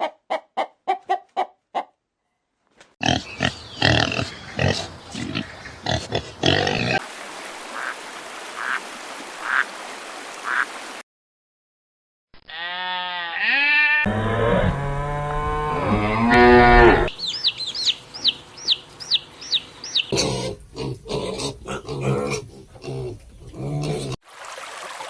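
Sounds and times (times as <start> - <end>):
pigs grunting and squealing: 3.0 - 7.0, 20.1 - 24.2.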